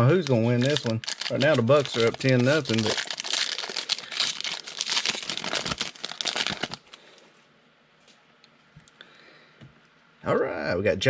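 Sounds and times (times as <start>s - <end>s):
wrapper crinkling as torn open: 0.0s - 7.0s.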